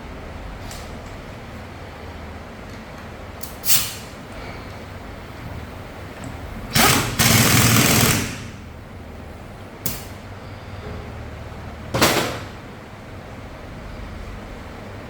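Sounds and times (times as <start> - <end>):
low factory hum: 0.0 - 15.0
compressed air hissing bursts: 3.4 - 4.2, 6.7 - 8.6.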